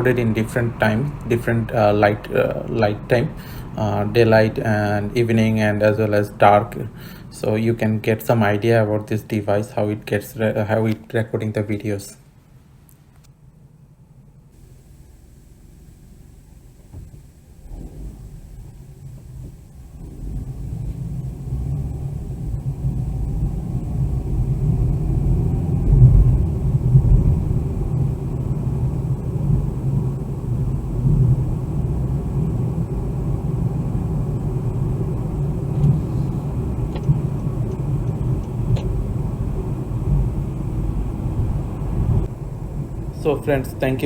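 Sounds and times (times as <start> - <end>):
car road and engine rumble: 0.0 - 44.0
faint clicks: 35.7 - 39.0.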